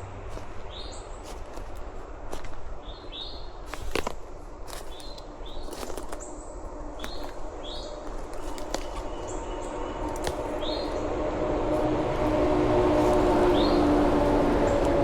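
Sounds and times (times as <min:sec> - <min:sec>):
footsteps on forest litter: 0:00.0 - 0:15.0
low steady hum: 0:00.0 - 0:15.0
bird chip calls: 0:04.7 - 0:15.0.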